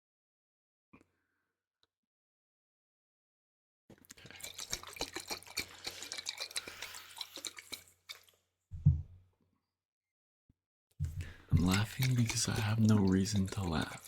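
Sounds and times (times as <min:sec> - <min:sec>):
wet liquid pops and crackles: 0:04.0 - 0:08.4, 0:11.0 - 0:14.0.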